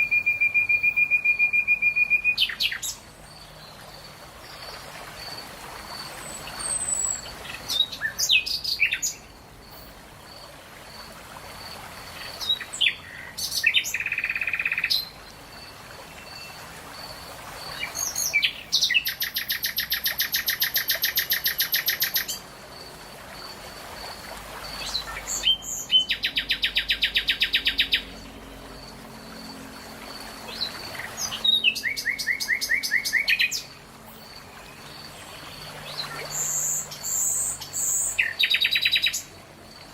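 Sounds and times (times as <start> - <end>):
songbirds singing trills: 0.0 - 4.8, 5.9 - 10.4, 12.2 - 22.5, 24.6 - 39.9.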